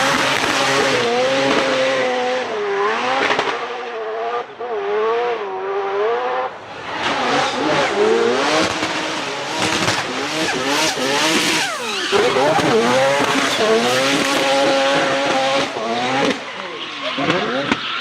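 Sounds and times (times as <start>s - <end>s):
car engine revving: 0.0s - 18.0s
tyres squealing: 10.5s - 15.1s.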